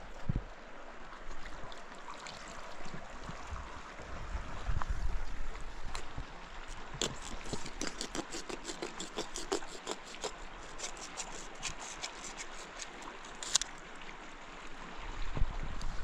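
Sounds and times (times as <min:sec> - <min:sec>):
small clicks and scrapes: 0:07.0 - 0:13.8.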